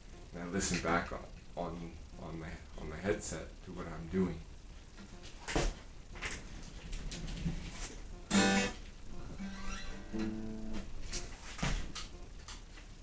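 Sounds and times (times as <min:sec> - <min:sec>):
acoustic guitar strum: 0:08.1 - 0:11.3
guitar notes plucked: 0:08.1 - 0:11.3
guitar handling knocks: 0:09.6 - 0:12.2.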